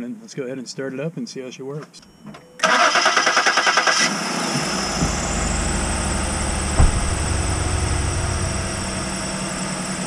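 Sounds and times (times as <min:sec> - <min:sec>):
engine cranking: 0:02.6 - 0:04.1
car engine running: 0:04.2 - 0:10.0.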